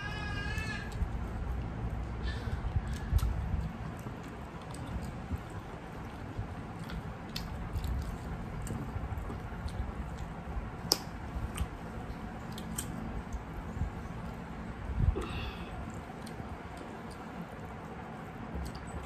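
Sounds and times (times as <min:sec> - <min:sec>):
chewing and wet mouth sounds: 0:00.6 - 0:19.0.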